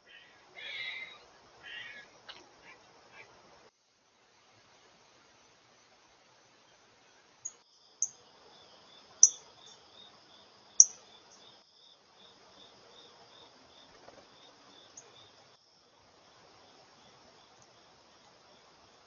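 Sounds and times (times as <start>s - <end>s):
insects trilling: 0.0s - 3.4s, 6.4s - 19.0s
cricket chirping: 0.0s - 19.0s
bird chirps: 9.2s - 9.8s.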